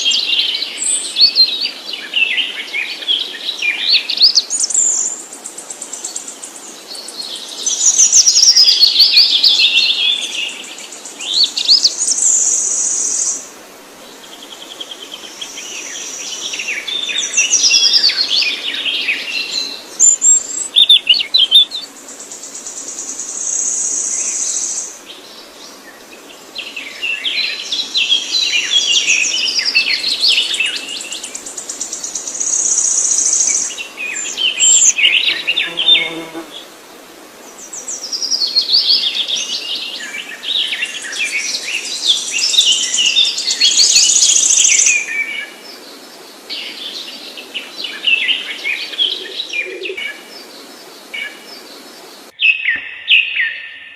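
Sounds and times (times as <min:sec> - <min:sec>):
small birds chirping: 0:14.1 - 0:36.6.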